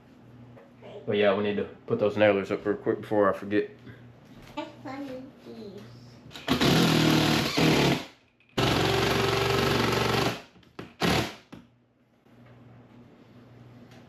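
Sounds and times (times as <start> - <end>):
impact driver driving screws into wood: 6.3 - 11.6.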